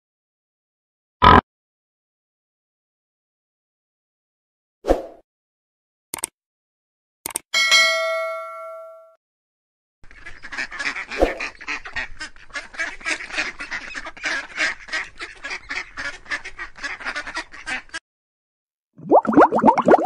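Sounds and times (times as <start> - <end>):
geese honking: 10.1 - 18.0.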